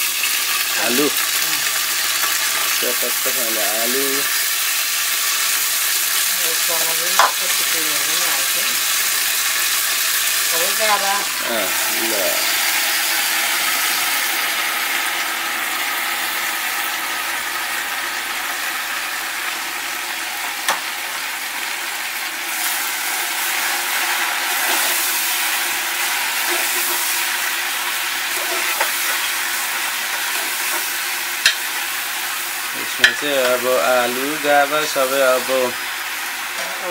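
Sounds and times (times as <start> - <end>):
vegetables sizzling in hot oil: 0.0 - 36.9.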